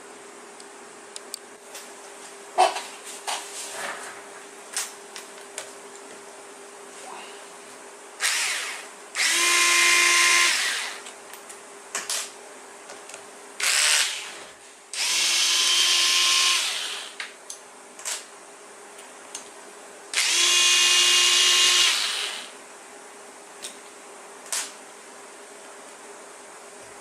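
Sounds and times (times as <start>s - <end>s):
electric screwdriver whining: 8.2s - 11.1s, 13.6s - 14.4s, 15.0s - 17.2s, 20.2s - 22.5s.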